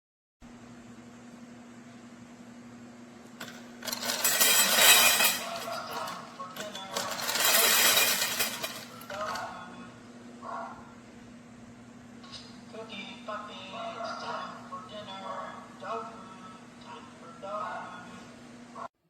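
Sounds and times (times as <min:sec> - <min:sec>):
kibble pouring into bowls: 0:03.8 - 0:09.4.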